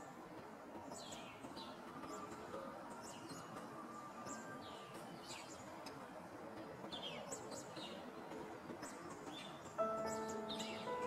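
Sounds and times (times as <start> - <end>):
soft outdoor hiss: 0.0 - 11.0
small songbirds chirping: 8.8 - 11.0.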